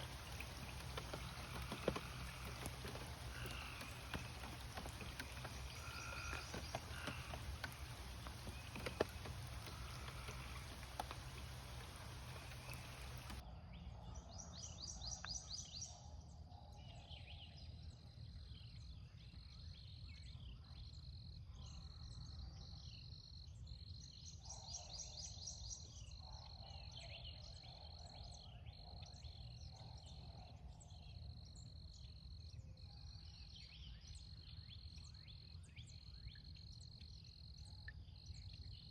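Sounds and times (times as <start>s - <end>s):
trilled animal calls: 0.0s - 13.4s.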